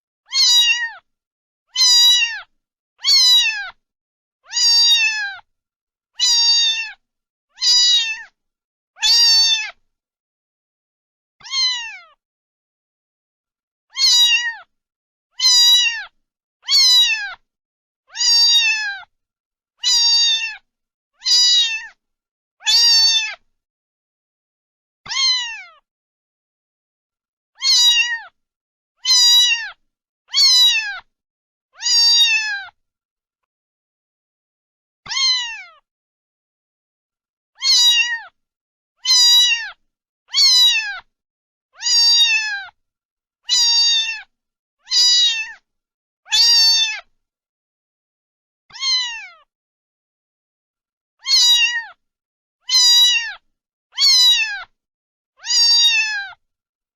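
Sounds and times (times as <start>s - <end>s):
cat meowing: 0.3s - 1.1s, 1.7s - 3.8s, 4.4s - 5.5s, 6.2s - 7.0s, 7.6s - 8.4s, 9.0s - 9.8s, 11.4s - 12.2s, 13.9s - 14.7s, 15.4s - 17.4s, 18.1s - 19.1s, 19.8s - 20.6s, 21.2s - 22.0s, 22.6s - 23.4s, 25.1s - 25.8s, 27.6s - 28.4s, 29.0s - 31.1s, 31.8s - 32.8s, 35.0s - 35.8s, 37.6s - 38.4s, 39.0s - 41.1s, 41.8s - 42.8s, 43.5s - 45.6s, 46.3s - 47.1s, 48.7s - 49.5s, 51.2s - 52.0s, 52.6s - 53.4s, 54.0s - 54.7s, 55.4s - 56.4s.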